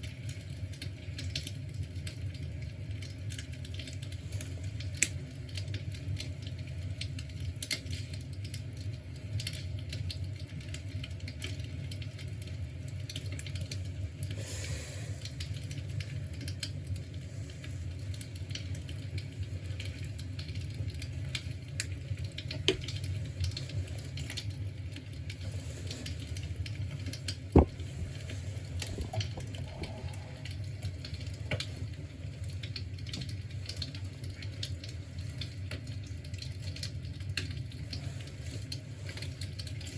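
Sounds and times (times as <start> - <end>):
fire crackling: 0.1 - 39.9
low rumble: 27.6 - 31.0.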